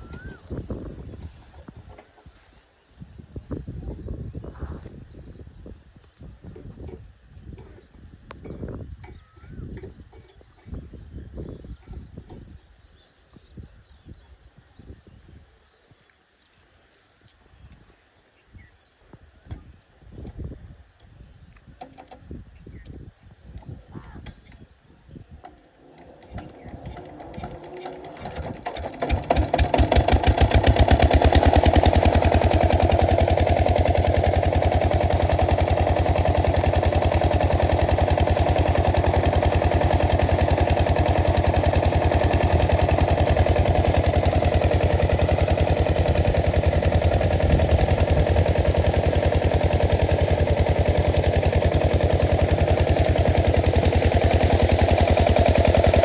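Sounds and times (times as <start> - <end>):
diesel engine starting and running: 25.4 - 56.0.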